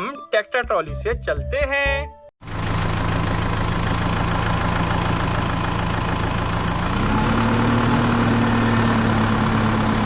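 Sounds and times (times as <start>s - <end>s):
tractor engine running: 2.4s - 10.0s.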